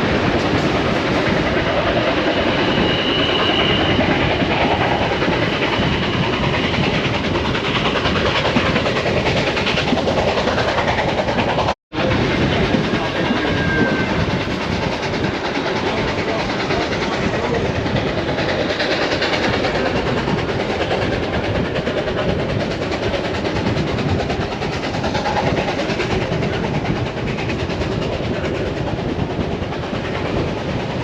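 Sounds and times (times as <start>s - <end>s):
train wheels rumbling on rails: 0.0s - 31.0s
brief high squeal: 13.2s - 14.2s.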